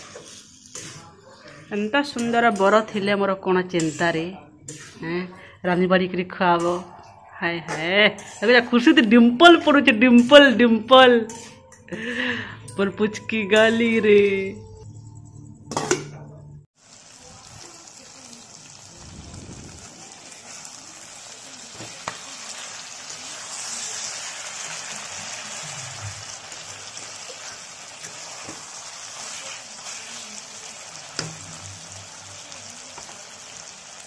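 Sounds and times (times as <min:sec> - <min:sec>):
chicken sizzling in a pan: 0:00.0 - 0:01.9, 0:16.8 - 0:34.0.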